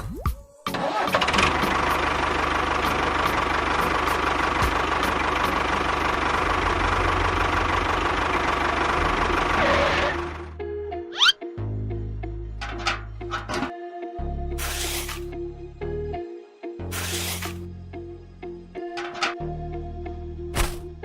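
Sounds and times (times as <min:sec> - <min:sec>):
engine idling with low chugging: 0:01.2 - 0:10.6.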